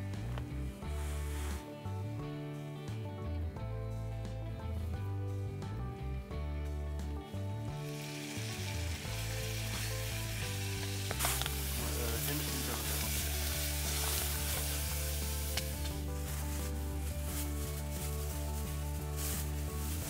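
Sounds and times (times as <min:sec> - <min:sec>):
background music: 0:00.0 - 0:20.0
bacon and eggs sizzling: 0:07.7 - 0:20.0
fat popping: 0:10.8 - 0:11.8.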